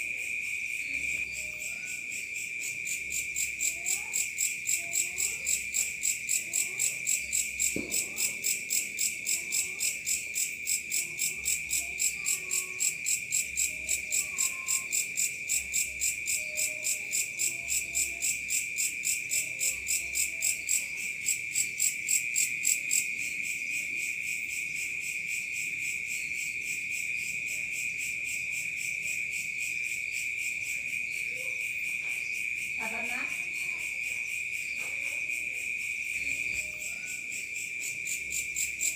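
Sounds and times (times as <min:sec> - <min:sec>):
insect high trill: 0:00.0 - 0:19.2.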